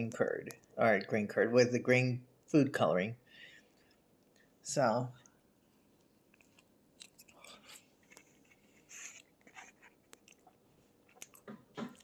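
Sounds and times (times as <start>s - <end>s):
faint chewing: 5.2s - 12.0s.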